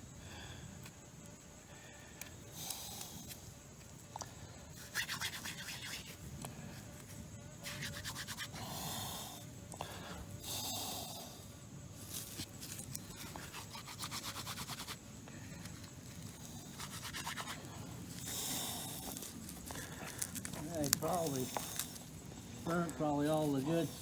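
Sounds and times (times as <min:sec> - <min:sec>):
scraping rasping strokes: 0:12.2 - 0:15.0, 0:15.6 - 0:18.3.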